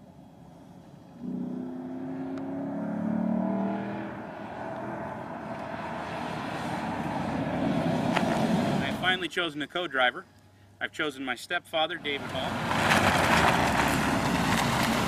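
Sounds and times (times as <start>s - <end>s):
car engine accelerating: 0.6s - 9.0s, 12.2s - 15.0s.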